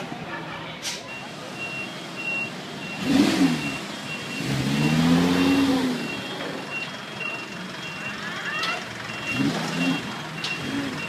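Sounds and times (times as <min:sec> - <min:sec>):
electronic beep: 0:01.1 - 0:08.2
car engine revving: 0:02.8 - 0:06.3, 0:09.2 - 0:11.0.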